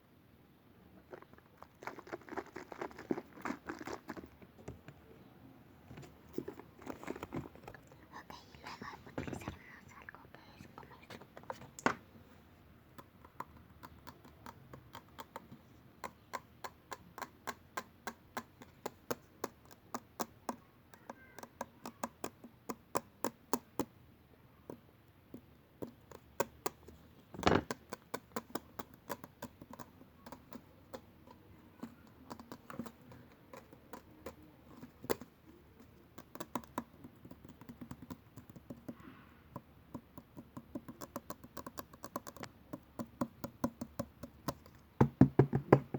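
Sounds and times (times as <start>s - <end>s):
fingers tapping and clicking: 12.9s - 24.0s, 24.7s - 45.9s.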